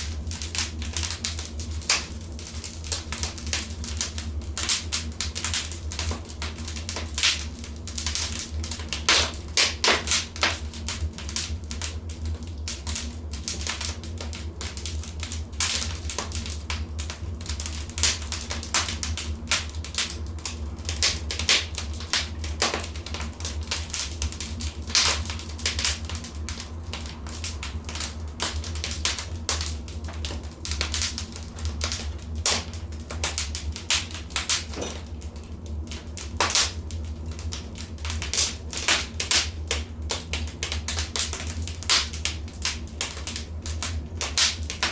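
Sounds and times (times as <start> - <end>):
fireplace fire crackling: 0.0 - 44.9.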